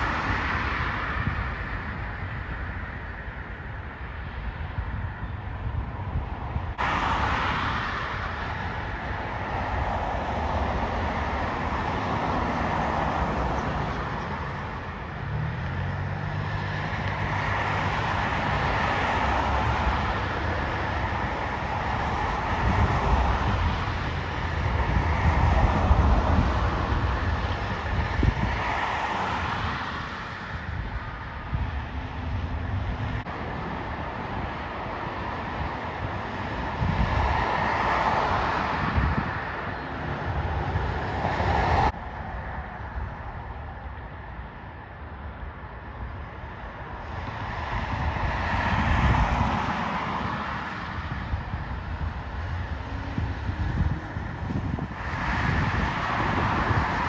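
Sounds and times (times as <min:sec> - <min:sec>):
wash of noise: 0:06.8 - 0:13.8.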